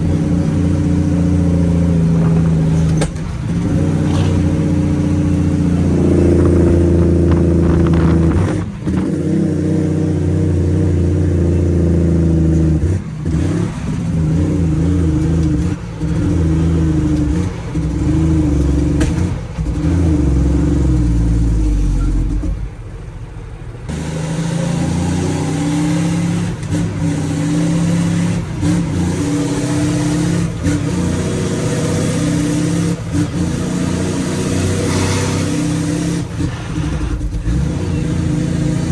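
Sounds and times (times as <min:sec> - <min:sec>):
diesel truck engine under load: 0:00.0 - 0:38.9.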